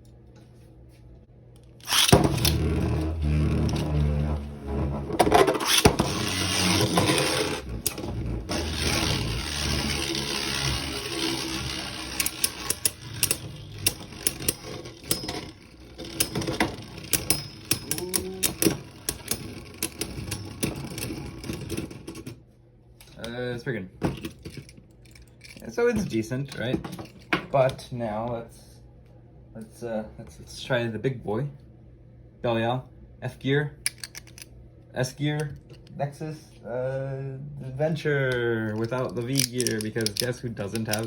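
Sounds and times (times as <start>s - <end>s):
spinning tops whirring and grinding: 1.7s - 22.4s, 38.6s - 41.0s
spinning tops clicking on impact: 5.6s - 21.3s.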